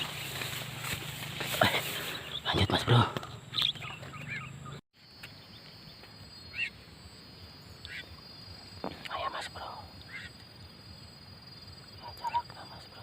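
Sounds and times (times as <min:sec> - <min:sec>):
short bird calls: 0:03.5 - 0:04.8, 0:06.4 - 0:06.8, 0:07.8 - 0:08.2, 0:10.0 - 0:10.4.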